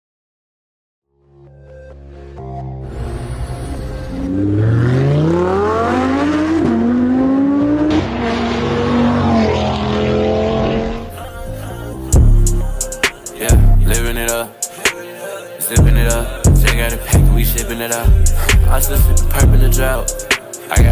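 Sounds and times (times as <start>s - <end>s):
car engine accelerating: 2.8s - 11.2s.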